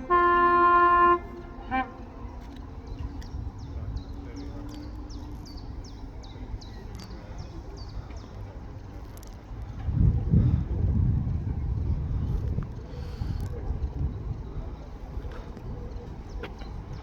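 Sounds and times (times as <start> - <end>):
two-tone train horn: 0.0 - 2.4.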